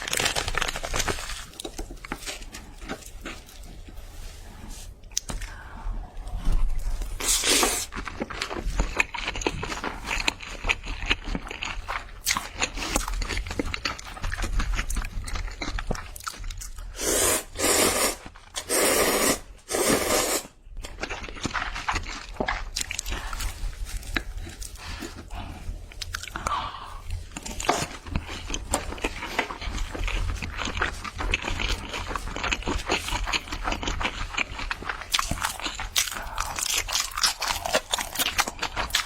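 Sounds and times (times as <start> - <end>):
crunching and chewing fried chicken: 0.0 - 4.0, 6.7 - 16.9, 20.7 - 39.0.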